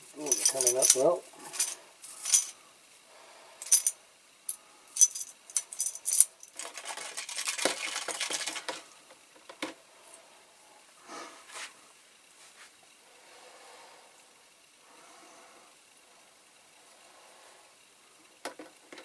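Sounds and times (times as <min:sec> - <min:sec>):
scrubbing: 0:00.0 - 0:02.6
metal toy parts clinking: 0:00.2 - 0:02.6, 0:03.6 - 0:07.8.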